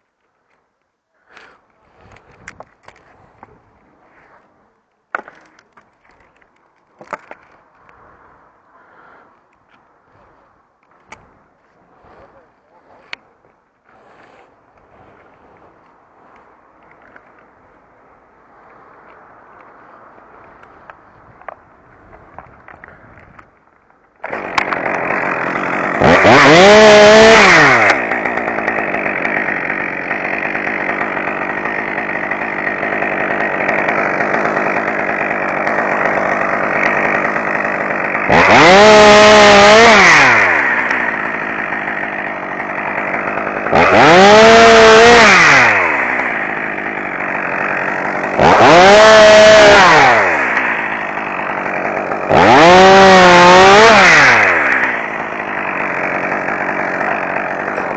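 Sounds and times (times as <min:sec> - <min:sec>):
two-stroke chainsaw revving: 0:24.2 - 0:57.9.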